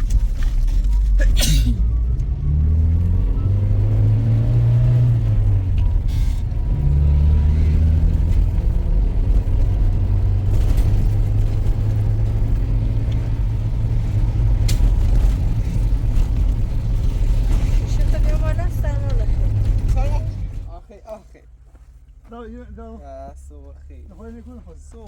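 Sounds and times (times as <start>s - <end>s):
tractor engine droning: 0.0s - 20.8s.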